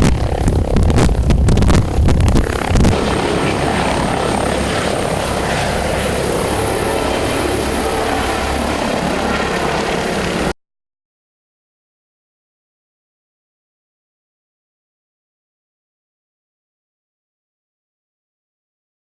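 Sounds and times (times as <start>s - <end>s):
wind buffeting on microphone: 0.0s - 10.5s
helicopter rotor and turbine: 0.0s - 10.6s.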